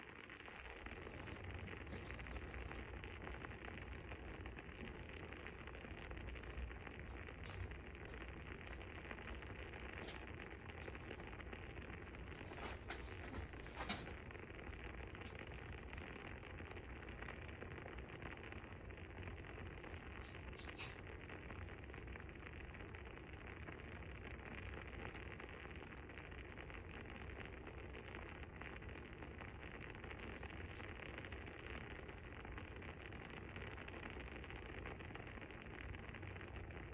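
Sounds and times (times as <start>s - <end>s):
fire crackling: 0.0s - 36.9s.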